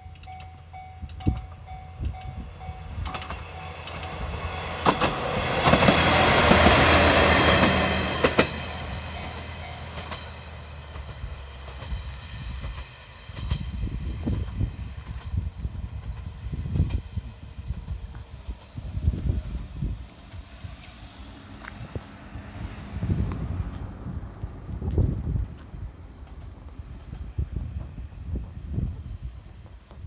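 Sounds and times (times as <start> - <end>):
level-crossing bell ringing: 0.0 - 3.8
railcar passing: 0.0 - 30.0.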